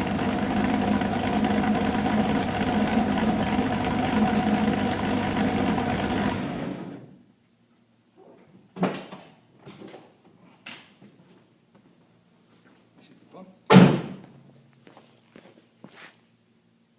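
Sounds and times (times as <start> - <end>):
car engine running and shutting off: 0.0 - 7.1.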